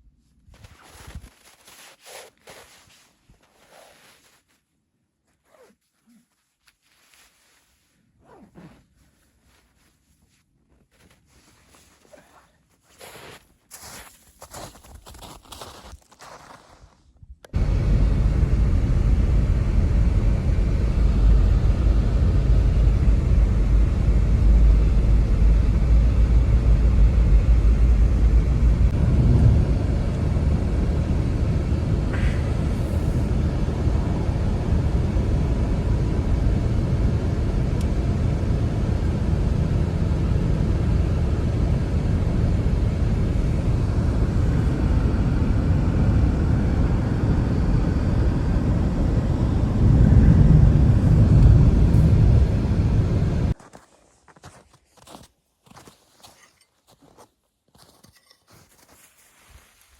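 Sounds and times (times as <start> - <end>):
blizzard wind rumbling: 17.5 - 53.6.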